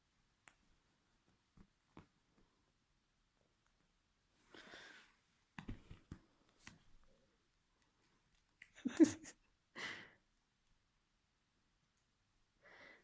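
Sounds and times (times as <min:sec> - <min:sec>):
soft rustles and small clicks: 0:00.1 - 0:02.8, 0:03.5 - 0:08.8.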